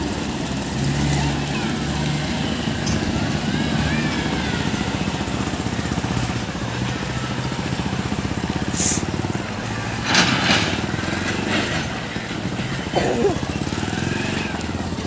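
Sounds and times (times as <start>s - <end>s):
diesel tractor engine running: 0.0s - 15.0s
brief high hiss: 8.7s - 9.1s.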